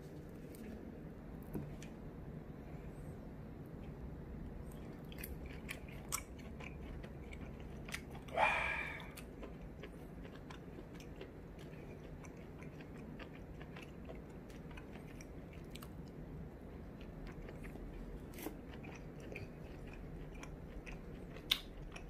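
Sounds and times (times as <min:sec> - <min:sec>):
person chewing: 0:04.6 - 0:22.0.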